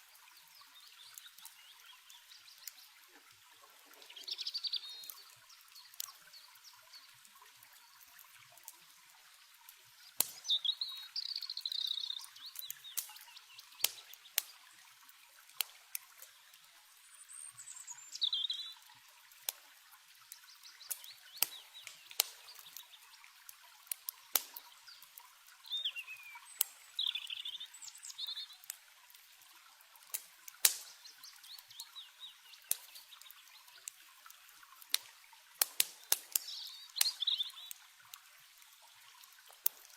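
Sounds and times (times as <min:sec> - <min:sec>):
campfire crackling: 0:00.0 - 0:16.9, 0:18.2 - 0:39.9
flowing water hiss: 0:00.0 - 0:39.9
birds chirping: 0:03.8 - 0:07.2, 0:10.4 - 0:14.4, 0:17.1 - 0:18.8, 0:24.5 - 0:28.7, 0:36.0 - 0:37.8.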